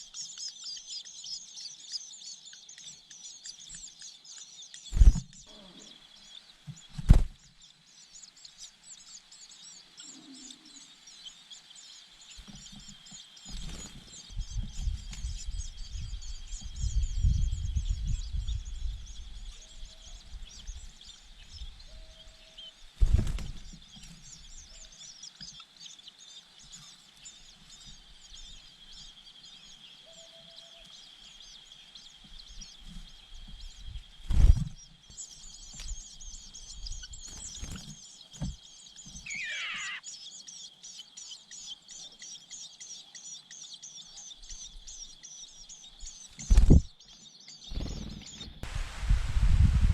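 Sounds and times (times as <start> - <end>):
faint low bird calls: 0.0 - 48.6
birds chirping: 0.0 - 48.7
wind buffeting microphone: 14.3 - 19.5, 47.8 - 49.9.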